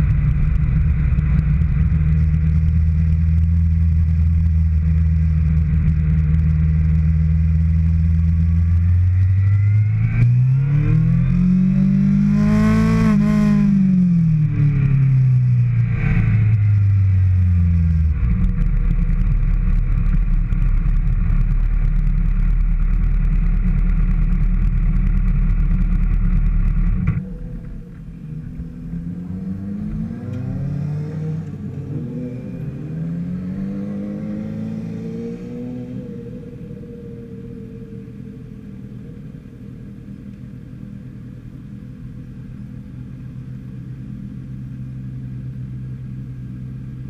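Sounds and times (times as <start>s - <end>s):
motorcycle engine revving: 0.0s - 27.4s, 28.4s - 37.5s.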